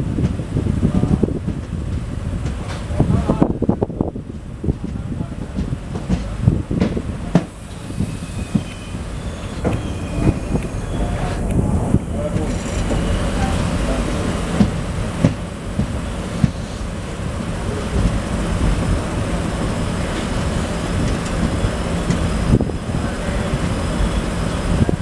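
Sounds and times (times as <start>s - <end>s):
train wheels rumbling: 0.0s - 25.0s
wheels clicking on track: 4.7s - 22.6s.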